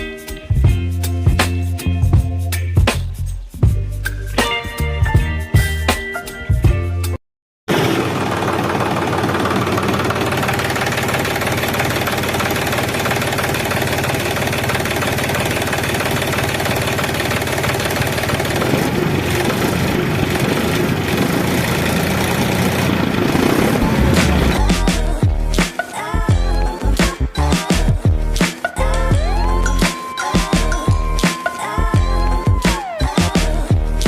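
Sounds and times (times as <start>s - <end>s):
tractor engine running: 7.7s - 25.5s.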